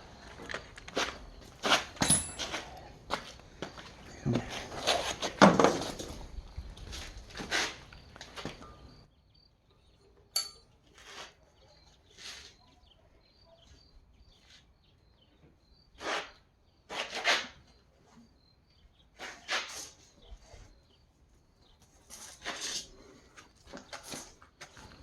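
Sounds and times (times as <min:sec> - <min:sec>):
metal parts and tools handled: 0:02.0 - 0:02.7, 0:10.3 - 0:10.7
sharp metallic clink: 0:02.0 - 0:02.7, 0:10.3 - 0:10.8.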